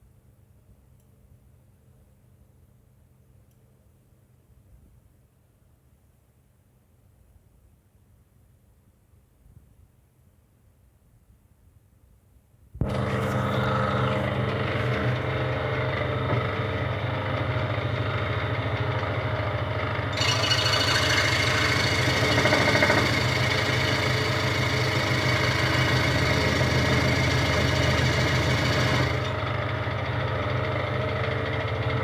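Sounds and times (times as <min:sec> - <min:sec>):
scroll saw motor humming: 0:12.8 - 0:32.0
hissing rasp of saw blade: 0:20.2 - 0:29.3.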